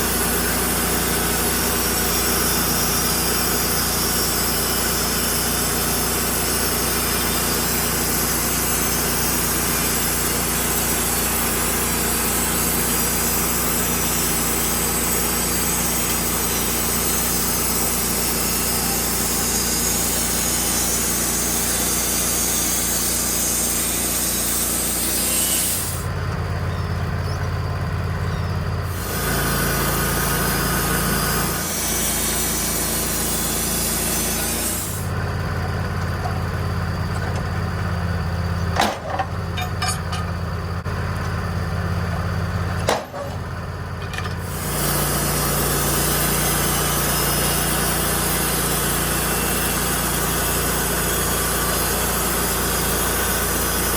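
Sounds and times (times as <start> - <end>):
saw blade cutting wood: 0.0 - 26.1, 28.9 - 35.2, 44.3 - 53.9
sawmill engine running: 0.0 - 53.9.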